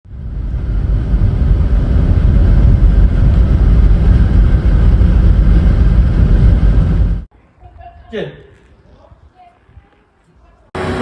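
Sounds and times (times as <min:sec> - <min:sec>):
car engine rumble: 0:00.1 - 0:07.3
road noise: 0:00.1 - 0:07.3.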